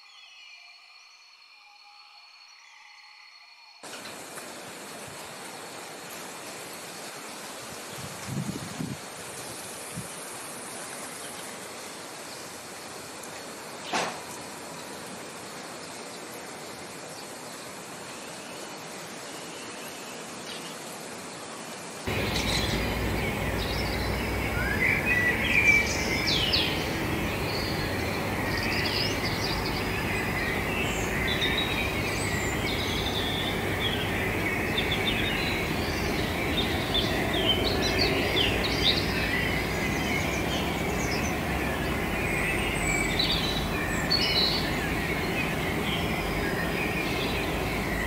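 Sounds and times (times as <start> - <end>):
steady background noise: 3.8 - 48.0
small birds chirping: 22.1 - 48.0.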